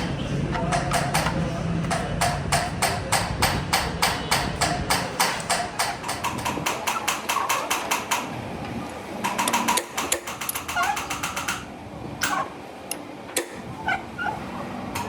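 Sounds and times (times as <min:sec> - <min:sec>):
hammer striking steel: 0:00.0 - 0:08.2.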